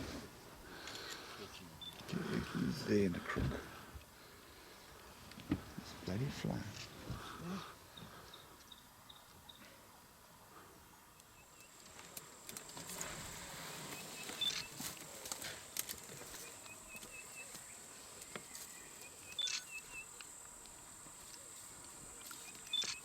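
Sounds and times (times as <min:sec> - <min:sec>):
bird calling: 0:13.6 - 0:14.8, 0:16.3 - 0:20.4, 0:21.9 - 0:23.0.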